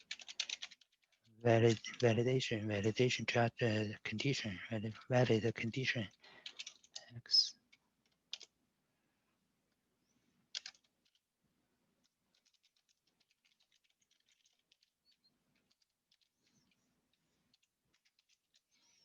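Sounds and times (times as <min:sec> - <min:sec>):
computer keyboard typing: 0:00.0 - 0:02.4, 0:05.7 - 0:07.1, 0:08.0 - 0:08.5, 0:10.5 - 0:11.2, 0:12.0 - 0:16.7, 0:17.5 - 0:18.8.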